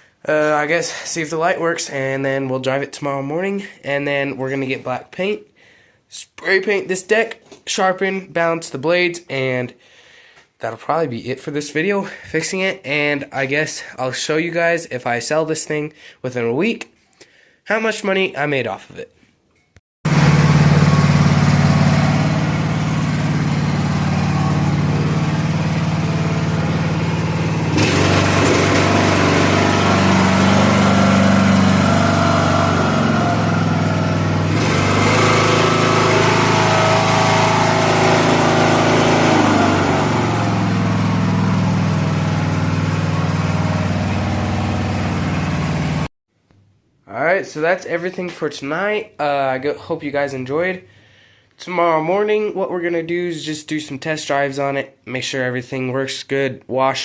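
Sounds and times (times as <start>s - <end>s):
lawn tractor engine running: 20.1s - 46.1s.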